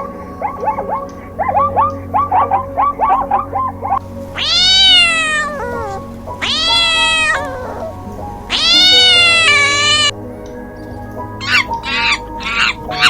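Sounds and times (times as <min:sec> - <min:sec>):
background music: 0:00.0 - 0:13.0
cat meowing: 0:04.2 - 0:10.2.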